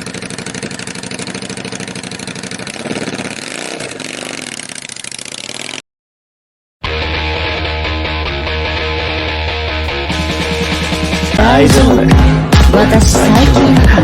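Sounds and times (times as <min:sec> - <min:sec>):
engine running: 0:00.0 - 0:05.8.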